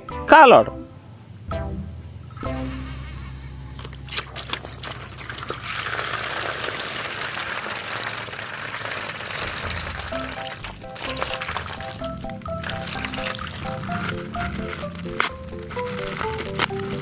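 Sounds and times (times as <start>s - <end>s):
water pouring: 3.8s - 17.0s.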